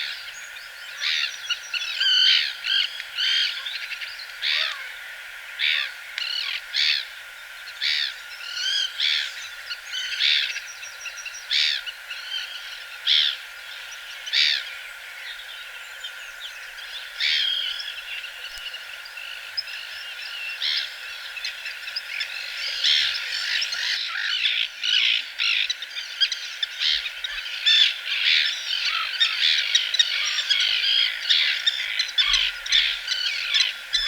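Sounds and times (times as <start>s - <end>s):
birds calling: 7.8s - 34.0s.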